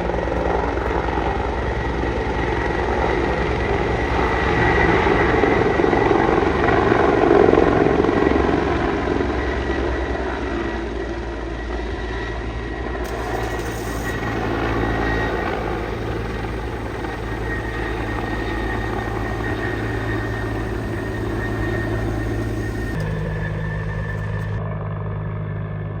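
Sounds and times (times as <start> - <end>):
steady low hum: 0.0 - 7.3, 13.0 - 24.6
helicopter rotor and turbine: 0.0 - 26.0.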